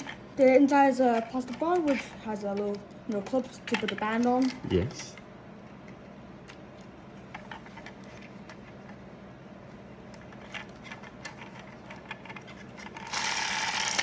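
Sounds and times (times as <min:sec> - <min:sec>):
low steady hum: 0:00.0 - 0:14.0
plastic parts clicking and tapping: 0:01.0 - 0:05.2.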